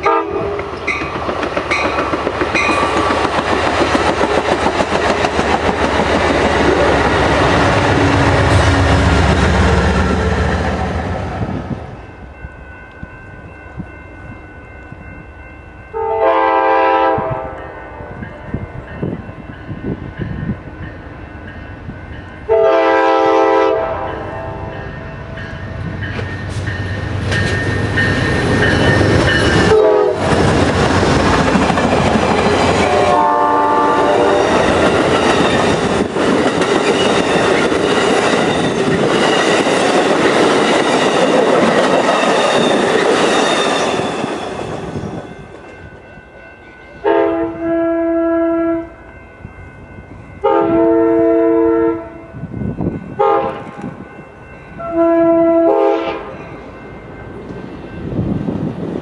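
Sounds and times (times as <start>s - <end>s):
train air horn: 0.0s - 0.7s, 15.9s - 18.2s, 22.5s - 24.7s, 29.6s - 30.4s, 32.8s - 34.7s, 47.0s - 49.0s, 50.4s - 52.3s, 53.2s - 53.8s, 54.8s - 56.4s
train cars rushing past: 0.0s - 59.0s.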